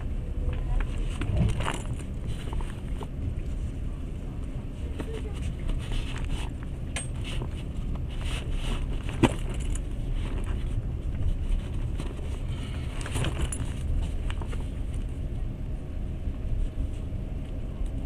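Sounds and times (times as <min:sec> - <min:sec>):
train rumble inside carriage: 0:00.0 - 0:18.0.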